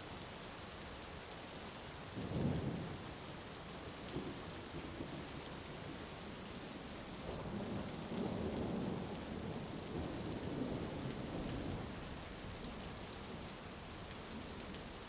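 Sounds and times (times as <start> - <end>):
heavy rain falling: 0.1 - 15.0.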